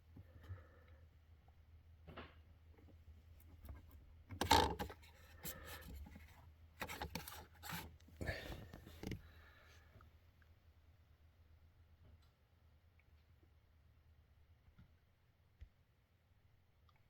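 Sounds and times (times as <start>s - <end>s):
plastic cover scraping: 4.4s - 9.2s.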